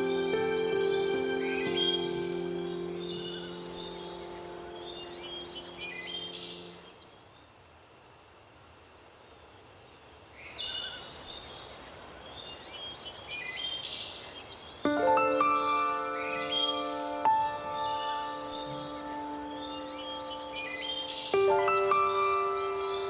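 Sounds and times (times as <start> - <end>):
sustained music chord: 0.0 - 6.9, 14.9 - 23.0
gentle wind hiss: 0.0 - 23.0
wild birds chirping: 0.0 - 23.0.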